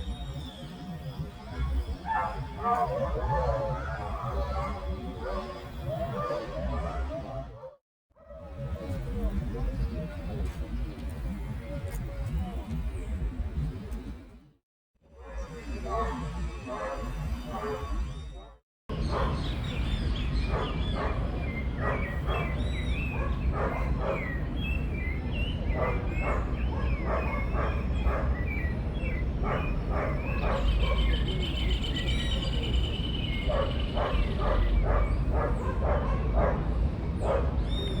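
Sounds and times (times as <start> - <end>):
bird chirps and calls: 37.6 - 38.0.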